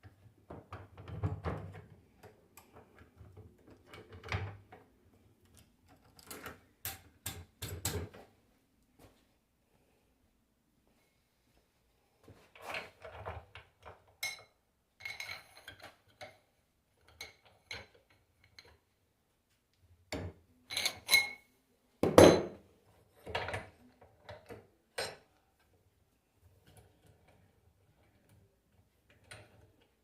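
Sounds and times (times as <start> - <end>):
metal tools clinking and knocking: 14.1 - 16.4, 20.7 - 21.4.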